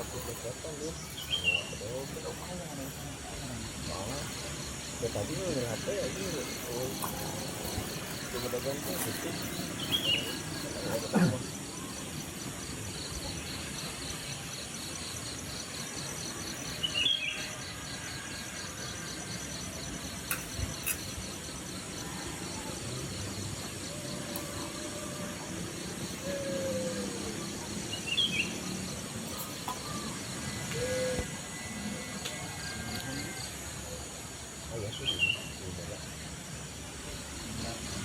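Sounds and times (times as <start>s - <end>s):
bird chirping: 0.0s - 12.1s
insects chirring: 0.0s - 38.0s.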